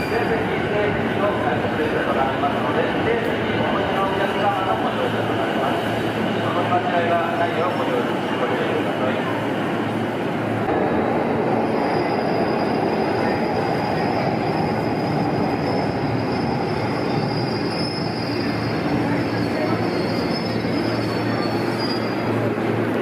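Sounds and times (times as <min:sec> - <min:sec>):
high wheel squeal: 0:11.7 - 0:22.3.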